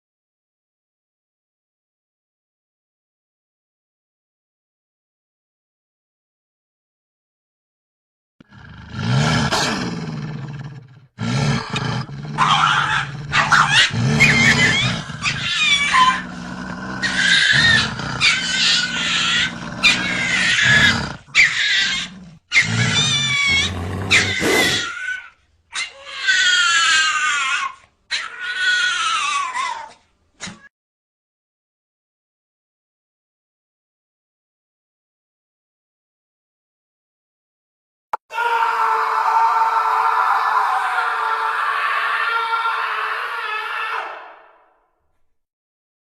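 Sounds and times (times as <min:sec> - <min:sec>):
animal growls: 0:08.4 - 0:25.0
high falling animal cries: 0:12.4 - 0:16.3, 0:16.9 - 0:29.9, 0:38.3 - 0:44.3.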